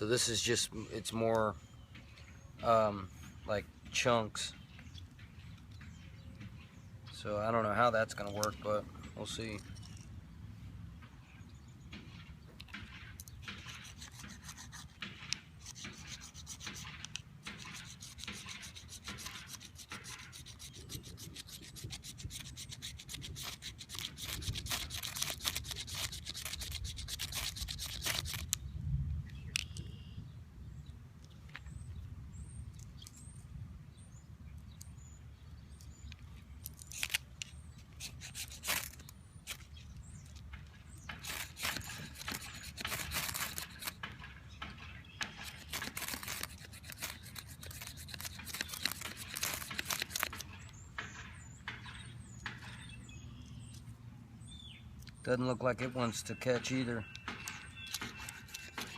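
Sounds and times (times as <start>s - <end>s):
fire steel scraping: 36.8s - 39.8s, 41.0s - 51.6s, 57.5s - 58.9s.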